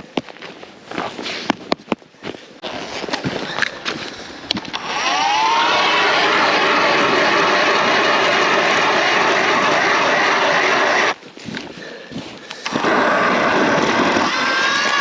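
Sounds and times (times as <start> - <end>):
motor whining at high speed: 4.7 - 11.2, 12.6 - 15.0.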